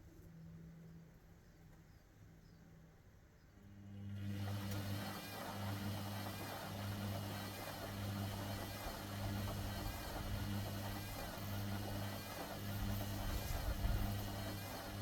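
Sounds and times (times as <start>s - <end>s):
washer-dryer running: 3.8s - 15.0s.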